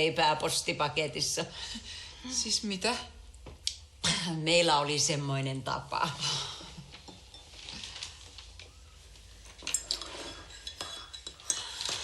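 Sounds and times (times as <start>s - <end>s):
cups and cutlery clinking: 7.0s - 7.7s, 9.5s - 12.0s.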